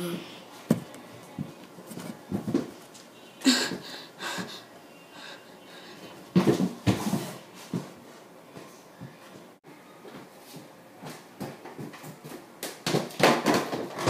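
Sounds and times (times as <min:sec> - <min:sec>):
person wheezing: 0:03.4 - 0:06.0.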